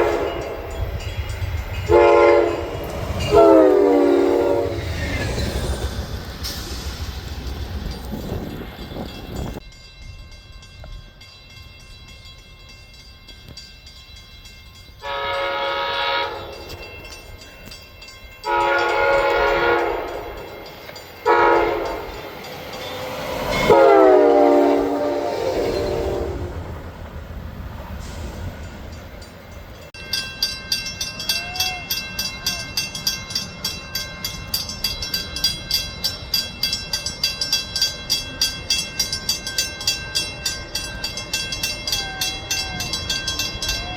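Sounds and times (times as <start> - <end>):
train horn blasts: 0.0 - 0.8, 1.8 - 5.0, 15.0 - 16.9, 18.4 - 22.2, 23.6 - 26.8
train wheels clicking on rails: 0.0 - 9.7, 10.4 - 43.9.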